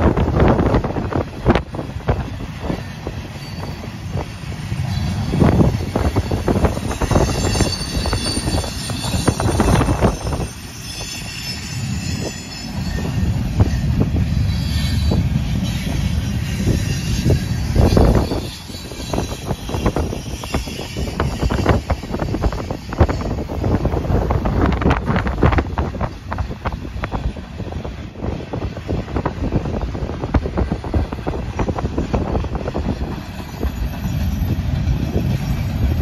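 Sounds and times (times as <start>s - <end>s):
freight train rumbling past: 0.0s - 36.0s
high-pitched wheel squeal: 3.2s - 23.5s.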